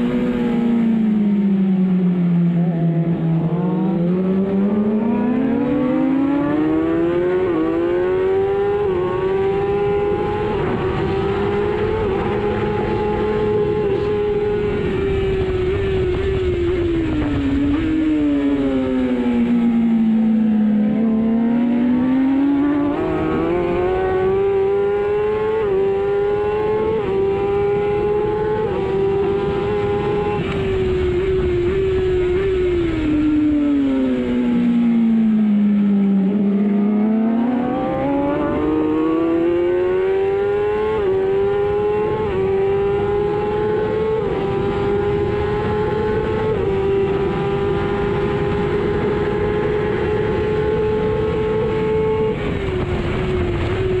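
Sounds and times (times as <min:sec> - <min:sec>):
racing motorcycle engine shifting gears: 0:00.0 - 0:54.0.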